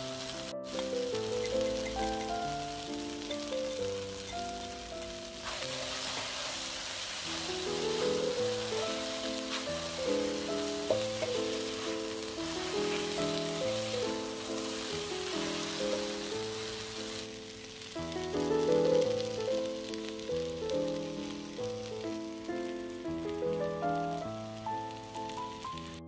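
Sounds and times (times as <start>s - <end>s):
background music: 0.0s - 17.4s, 18.0s - 26.0s
food sizzling in oil: 0.0s - 26.0s
spatula stirring in pan: 5.4s - 16.9s.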